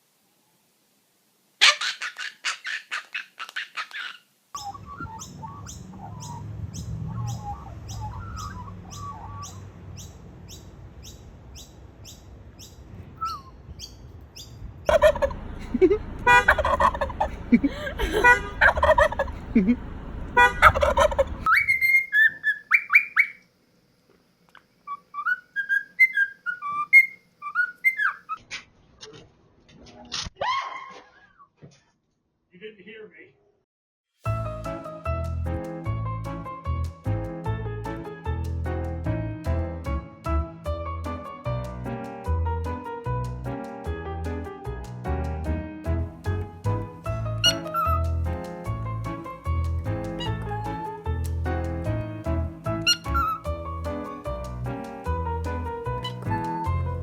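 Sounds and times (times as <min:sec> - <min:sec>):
birds calling: 0:01.6 - 0:23.4, 0:24.9 - 0:28.4, 0:47.3 - 0:48.3, 0:52.7 - 0:53.6, 0:55.9 - 0:57.0.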